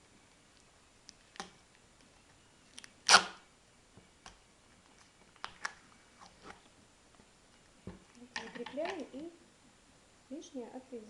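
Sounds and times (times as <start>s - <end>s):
tape ripping off roll: 2.8s - 3.4s.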